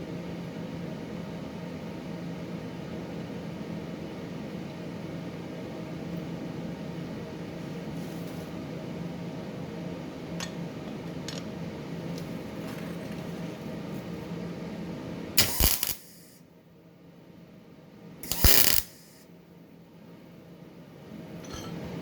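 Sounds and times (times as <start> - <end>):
welder humming: 15.4 - 16.4, 18.2 - 19.2
welding arc crackling: 15.4 - 16.4, 18.2 - 19.2.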